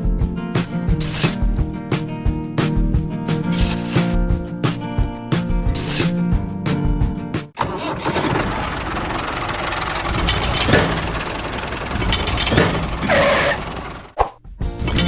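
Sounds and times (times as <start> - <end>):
small motor mechanical rattle: 7.6 - 14.2
sharp clicks: 8.9 - 14.1.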